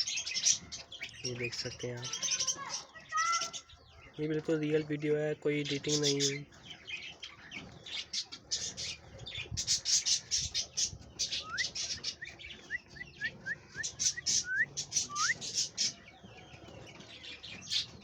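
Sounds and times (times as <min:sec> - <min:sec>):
parrots chirping: 0:05.6 - 0:16.2
short rising whistles: 0:14.4 - 0:15.4.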